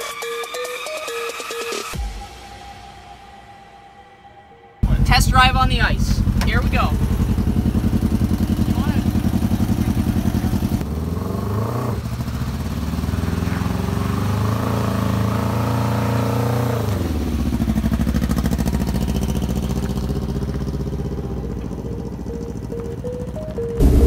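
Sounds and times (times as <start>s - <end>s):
motorcycle engine revving: 4.8s - 24.0s.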